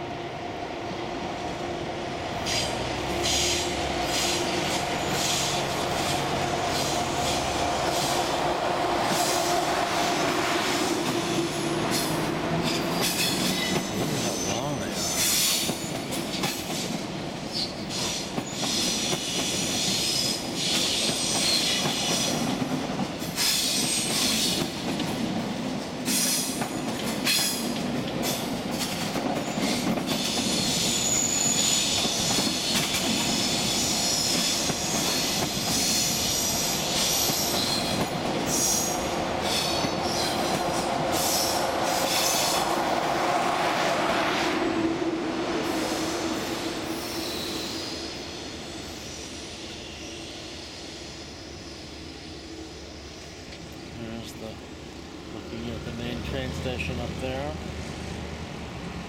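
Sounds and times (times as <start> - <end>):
train wheels rumbling: 0.0 - 59.0
high wheel squeal: 29.6 - 32.8.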